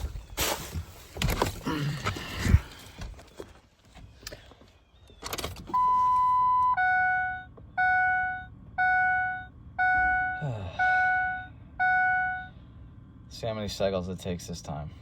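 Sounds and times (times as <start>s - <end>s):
dashboard warning chime: 5.7s - 12.6s
steady beep: 5.8s - 12.6s.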